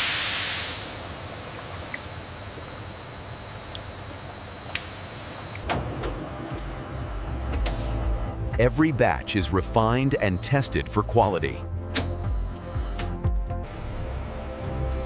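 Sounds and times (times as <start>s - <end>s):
machinery hum and hiss: 0.0s - 8.4s
faint high whine: 0.7s - 5.6s.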